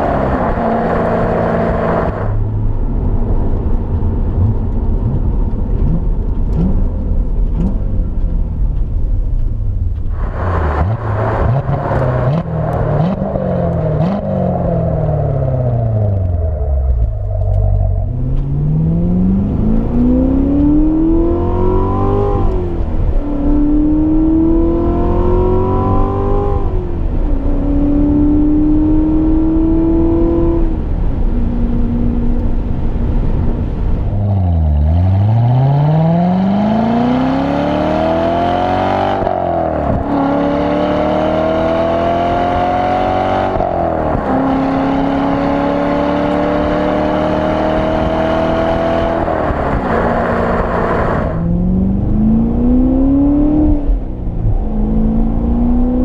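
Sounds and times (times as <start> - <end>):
car engine accelerating hard: 0.0 - 56.0.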